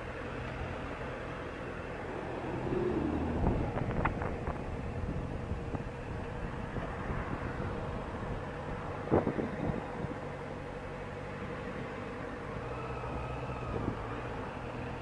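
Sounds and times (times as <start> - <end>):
vehicle engines in traffic: 0.0 - 15.0
wind on microphone: 2.7 - 10.2, 13.0 - 14.4.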